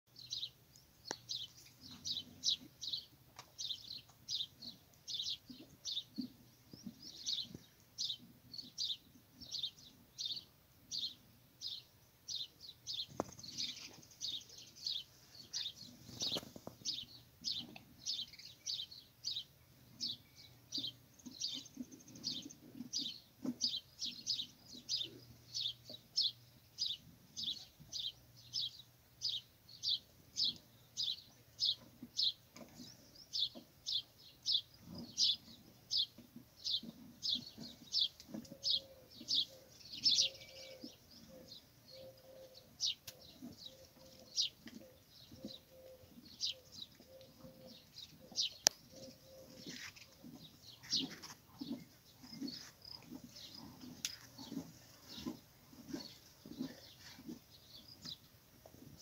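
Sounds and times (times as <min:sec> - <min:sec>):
small bird chirping: 0:00.1 - 0:58.9.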